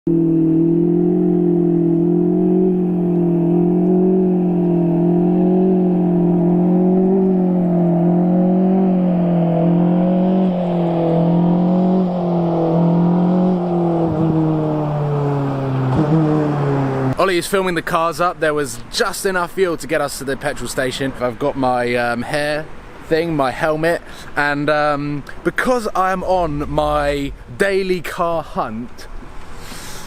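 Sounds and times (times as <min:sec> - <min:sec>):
car engine revving: 0:00.1 - 0:17.2, 0:26.3 - 0:27.6.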